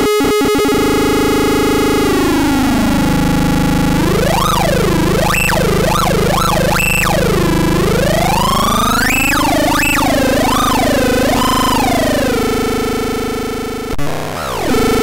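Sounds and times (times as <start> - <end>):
buzzy synthesizer oscillators: 0.0 - 15.0.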